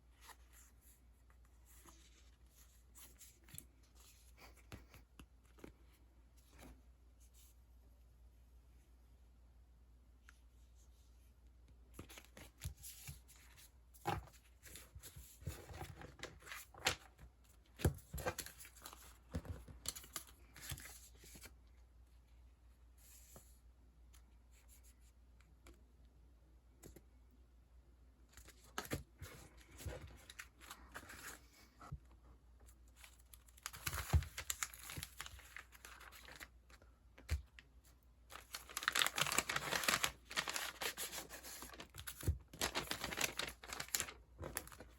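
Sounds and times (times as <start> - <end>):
sticker packaging crinkling: 38.3 - 44.9.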